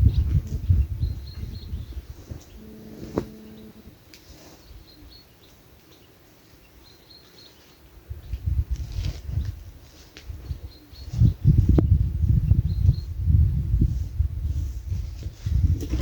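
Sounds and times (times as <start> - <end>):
low rumbling noise: 0.0 - 4.5.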